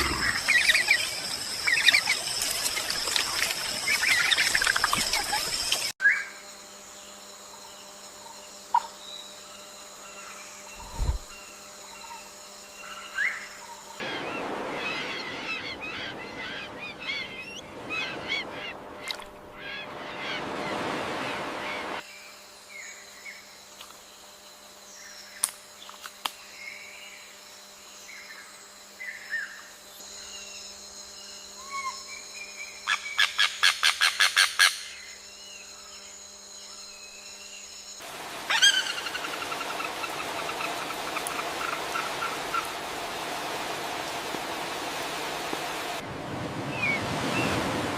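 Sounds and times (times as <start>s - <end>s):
birds calling: 38.3s - 46.0s.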